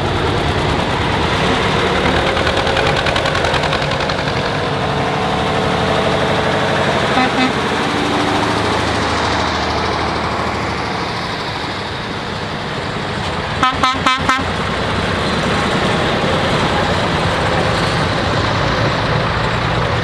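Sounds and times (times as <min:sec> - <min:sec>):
diesel tractor engines: 0:00.0 - 0:20.0
horn toot: 0:07.1 - 0:07.9, 0:13.6 - 0:14.6.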